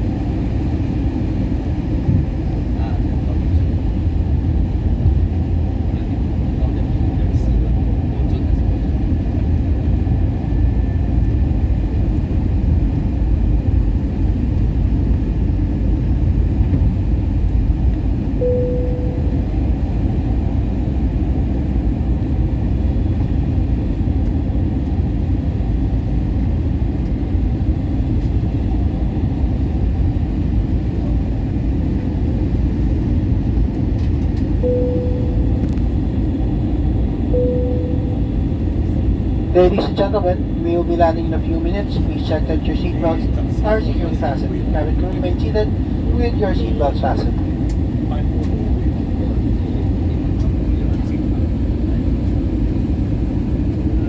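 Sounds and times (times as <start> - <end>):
airliner engines rumbling: 0.0 - 54.0
short steady tone: 18.4 - 19.7, 34.6 - 36.0, 37.3 - 38.7.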